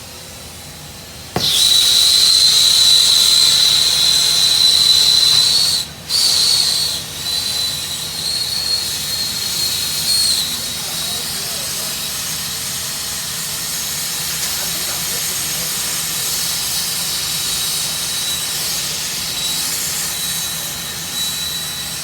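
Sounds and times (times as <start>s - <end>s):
torch ignition click: 1.3s - 3.0s
gas torch hissing: 1.3s - 22.0s
high whistle in flame: 1.4s - 22.0s.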